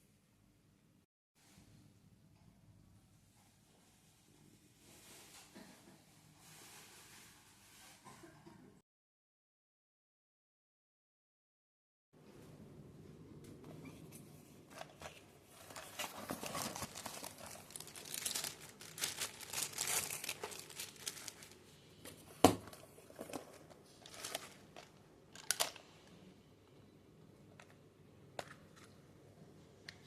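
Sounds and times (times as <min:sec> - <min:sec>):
packaging crinkling: 0:15.6 - 0:21.7, 0:23.2 - 0:25.8.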